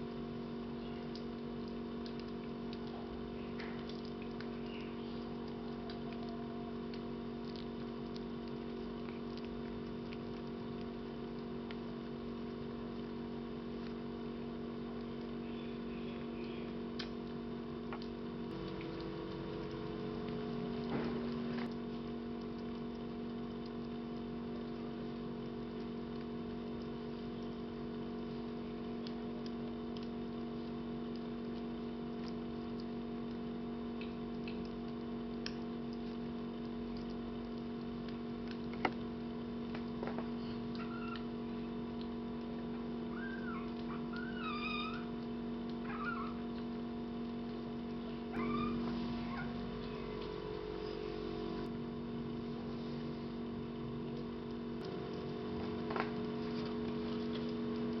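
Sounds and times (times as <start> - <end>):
steady hum: 0.0 - 58.0
kittens mewing: 43.1 - 45.1, 48.3 - 50.9.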